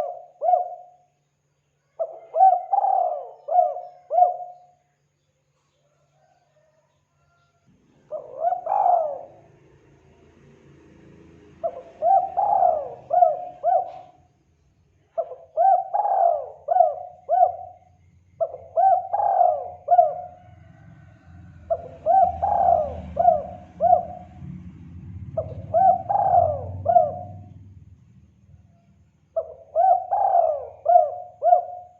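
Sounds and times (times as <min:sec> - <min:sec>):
dove cooing: 0:00.0 - 0:01.0, 0:01.9 - 0:04.8, 0:06.2 - 0:07.3, 0:08.0 - 0:09.6, 0:11.6 - 0:14.3, 0:15.1 - 0:24.5, 0:25.3 - 0:27.6, 0:29.4 - 0:31.9
faint low rumble: 0:20.3 - 0:29.7.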